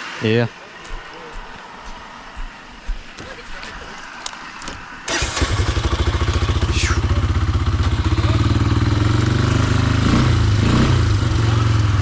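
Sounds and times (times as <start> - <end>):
atv engine idling: 3.2 - 12.0.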